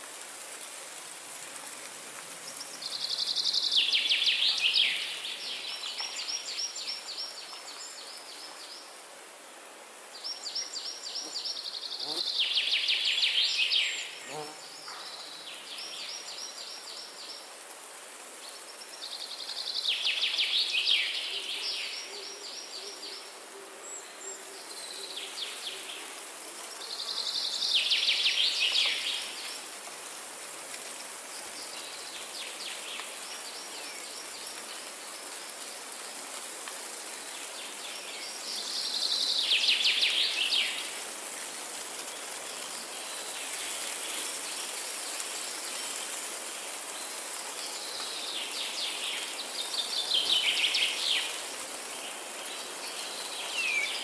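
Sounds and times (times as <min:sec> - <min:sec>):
steady background hiss: 0:00.0 - 0:54.0
songbird singing: 0:02.4 - 0:08.8.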